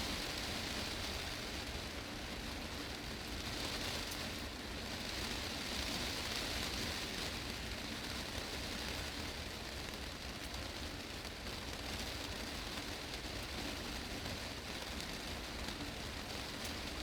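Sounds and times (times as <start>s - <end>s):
heavy rain on glass roof: 0.0s - 17.0s.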